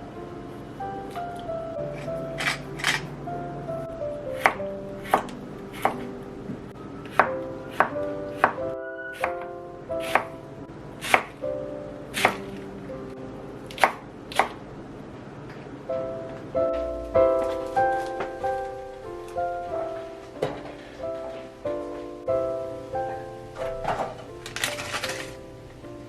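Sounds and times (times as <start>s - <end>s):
background music: 0.0s - 14.4s, 15.8s - 26.0s
knife chopping on cutting board: 10.0s - 10.3s, 11.0s - 11.4s.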